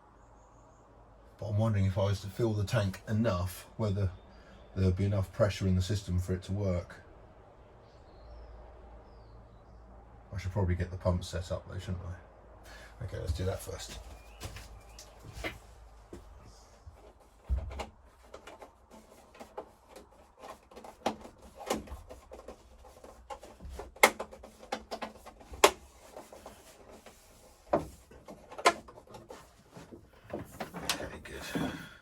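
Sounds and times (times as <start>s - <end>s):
tools clicking and knocking: 17.0s - 27.1s.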